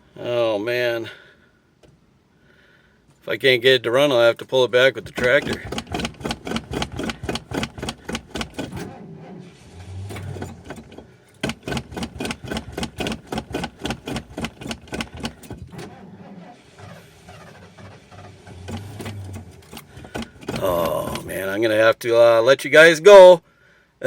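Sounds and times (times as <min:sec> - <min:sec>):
starter cranking engine: 0:05.0 - 0:21.5.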